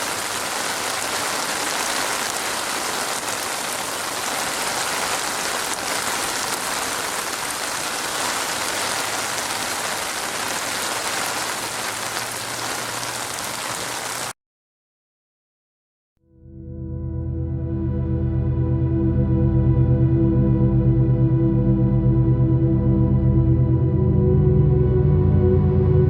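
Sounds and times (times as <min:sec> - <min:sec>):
dense rainfall: 0:00.0 - 0:14.4.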